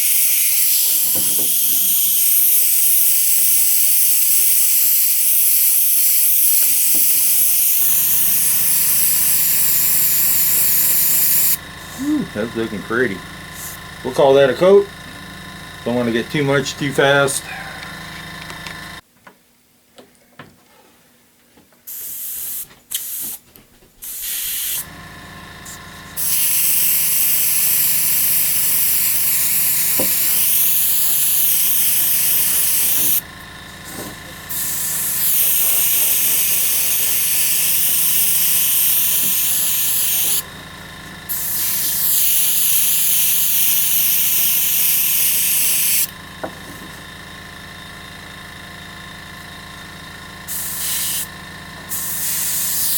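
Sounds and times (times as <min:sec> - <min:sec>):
air compressor humming: 0:00.0 - 0:19.0, 0:21.9 - 0:52.9
spray gun hissing: 0:00.0 - 0:19.0, 0:24.0 - 0:33.2, 0:33.8 - 0:40.5, 0:41.3 - 0:46.2, 0:50.5 - 0:51.3, 0:51.9 - 0:52.9.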